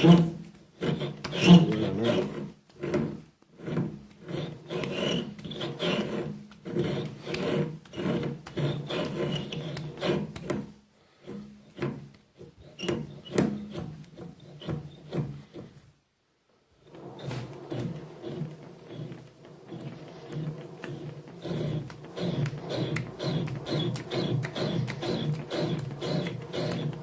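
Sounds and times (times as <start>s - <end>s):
lathe tool scraping metal: 0.0s - 2.5s, 3.6s - 10.3s, 16.9s - 27.0s.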